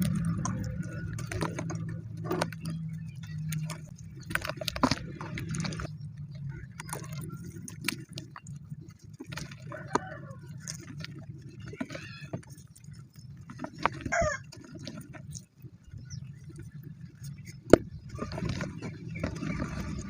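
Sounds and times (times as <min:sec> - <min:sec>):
cement chunks crunching: 0:00.0 - 0:15.5
low hum: 0:00.0 - 0:20.0.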